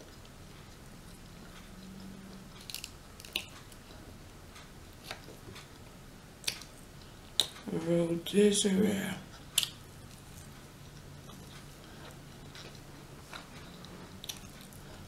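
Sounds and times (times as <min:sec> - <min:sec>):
person chewing food: 0:00.0 - 0:07.7, 0:09.3 - 0:15.0.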